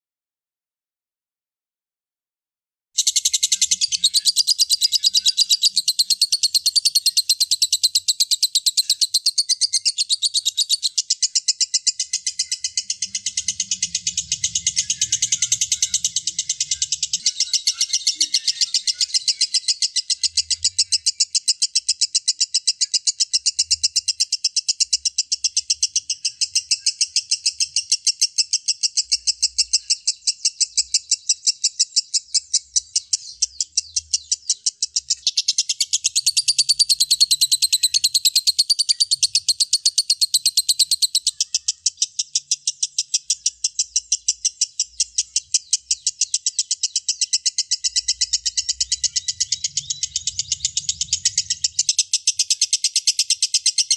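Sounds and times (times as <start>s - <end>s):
lovebird high-pitched chatter: 3.0s - 53.9s.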